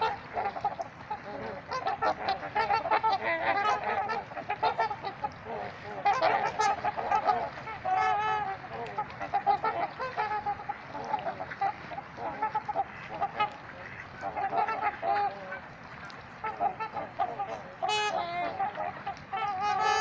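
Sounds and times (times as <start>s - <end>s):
swans honking: 0.0s - 20.0s.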